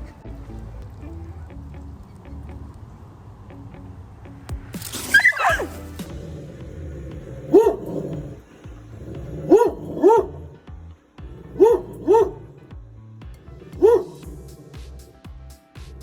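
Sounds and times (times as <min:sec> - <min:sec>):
dog barking: 0:05.1 - 0:05.9, 0:07.2 - 0:08.4, 0:09.0 - 0:10.6, 0:11.3 - 0:12.6, 0:13.6 - 0:15.0.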